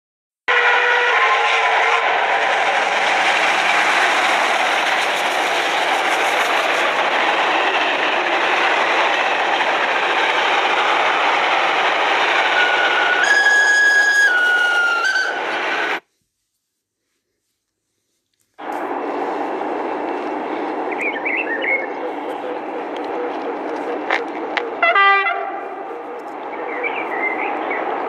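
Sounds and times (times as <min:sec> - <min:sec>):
train horn changing pitch: 0:00.5 - 0:02.2, 0:12.5 - 0:15.6, 0:24.8 - 0:25.8
train wheels rumbling on rails: 0:00.6 - 0:16.1, 0:18.6 - 0:28.0.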